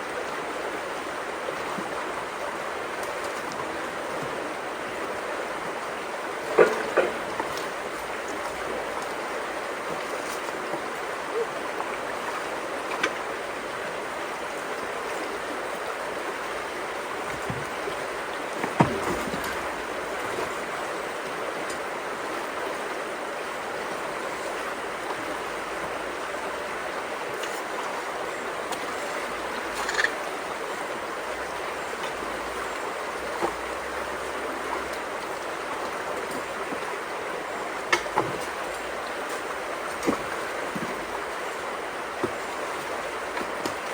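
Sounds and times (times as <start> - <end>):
flowing creek water: 0.0 - 43.9
short knocks or splashes: 18.6 - 20.6.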